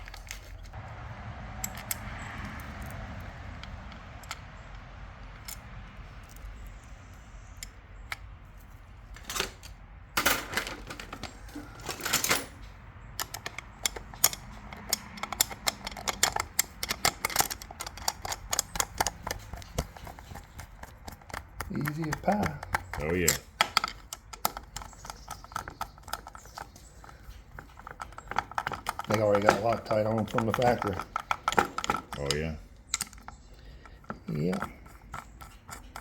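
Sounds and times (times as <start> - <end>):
metal knocks and rattles: 9.2 - 36.0
hand tool clicking: 13.2 - 36.0.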